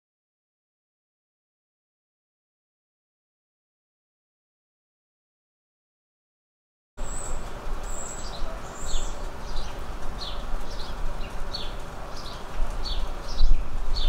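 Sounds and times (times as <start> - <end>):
background hiss: 7.0 - 14.0
bird chirping: 7.0 - 14.0.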